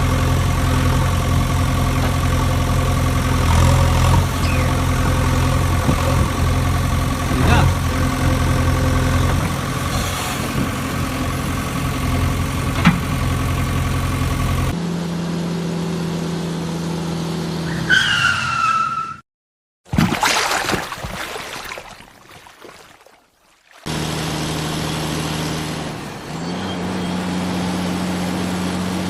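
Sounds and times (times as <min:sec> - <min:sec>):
engine running: 0:00.0 - 0:17.7, 0:23.8 - 0:29.0
engine hum: 0:00.0 - 0:17.9, 0:20.0 - 0:29.0
tyre screech: 0:17.7 - 0:19.2.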